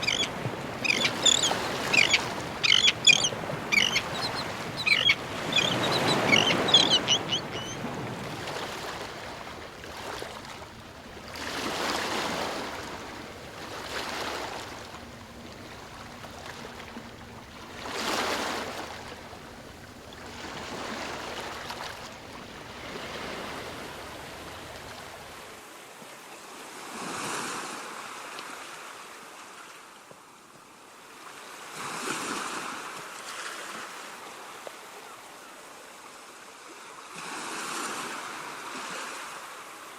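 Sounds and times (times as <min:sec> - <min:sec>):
seagulls calling: 0:00.0 - 0:09.0
ocean waves breaking: 0:00.0 - 0:25.6.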